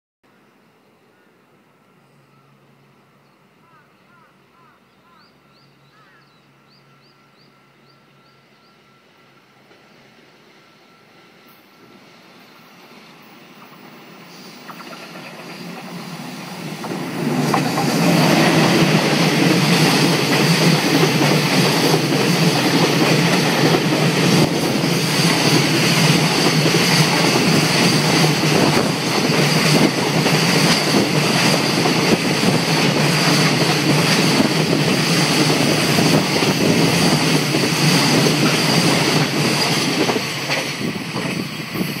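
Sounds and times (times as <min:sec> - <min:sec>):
freight train passing: 0:00.6 - 0:42.0
clickety-clack of wheels on rail joints: 0:12.8 - 0:42.0.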